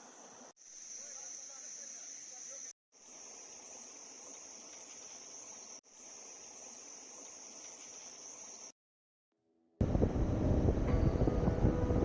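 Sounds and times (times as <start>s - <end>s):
shrill drone of forest insects: 0.0s - 8.8s.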